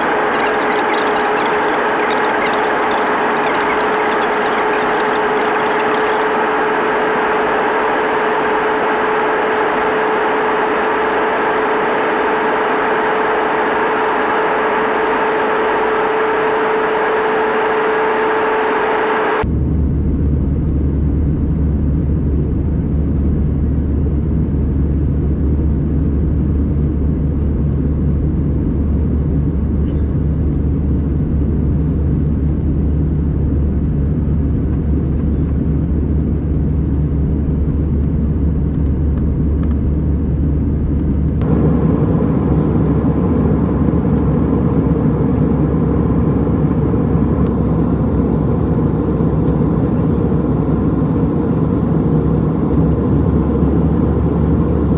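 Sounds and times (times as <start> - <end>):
airplane cabin engine rumble: 0.0 - 19.4, 40.7 - 54.9.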